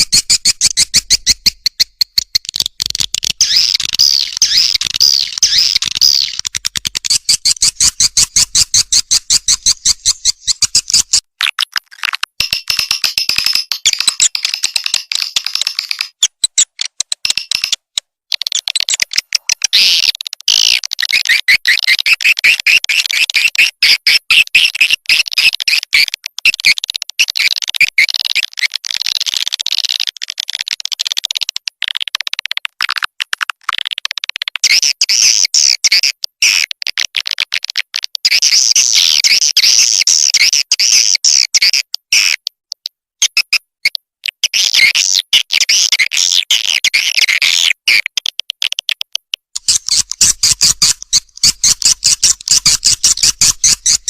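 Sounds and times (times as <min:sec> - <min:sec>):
swiftlets chirping and twittering: 0:03.4 - 0:06.4, 0:49.6 - 0:54.0.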